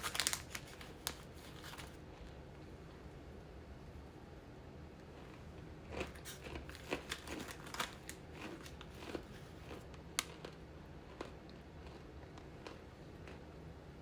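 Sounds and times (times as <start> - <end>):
crunching and chewing: 0.0 - 2.4, 5.0 - 13.6.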